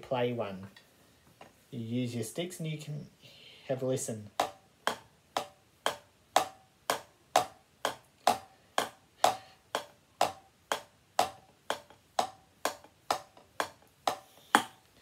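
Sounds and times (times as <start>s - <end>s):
drumsticks tapping practice pad: 4.3s - 14.9s.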